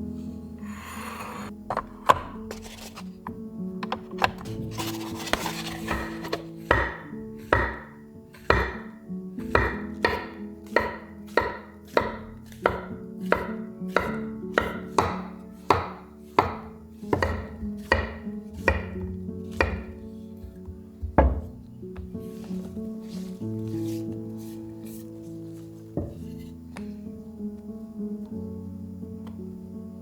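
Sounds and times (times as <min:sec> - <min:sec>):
soft background music: 0:00.0 - 0:30.0
knife chopping on cutting board: 0:03.8 - 0:23.2.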